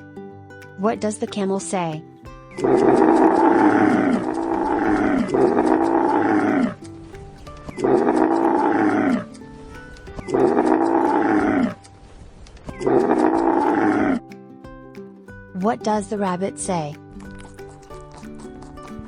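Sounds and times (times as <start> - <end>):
camel bellowing: 2.6 - 11.9, 12.8 - 14.2.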